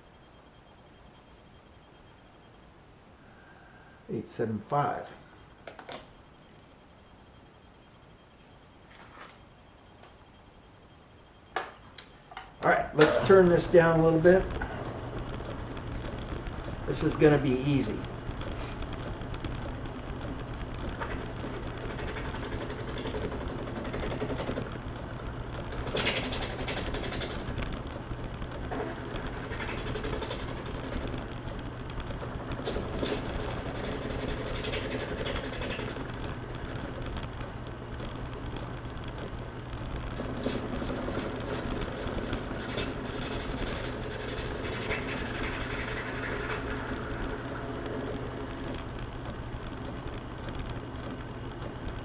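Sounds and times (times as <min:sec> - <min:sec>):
metal lathe running: 0:20.4 - 0:37.3, 0:40.1 - 0:48.9
metal lathe hum: 0:40.2 - 0:48.5.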